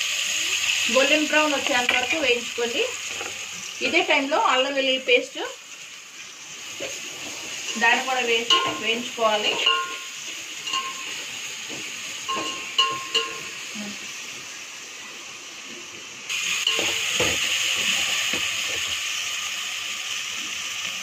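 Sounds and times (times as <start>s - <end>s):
onions sizzling in oil: 0.0s - 21.0s
metal spoon clinking against pot: 8.4s - 11.2s, 12.3s - 13.5s.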